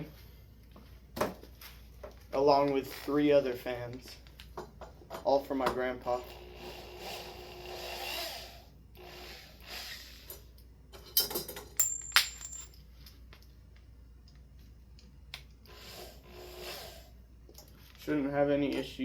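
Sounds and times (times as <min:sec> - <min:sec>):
small metal parts clinking: 0:11.1 - 0:12.8.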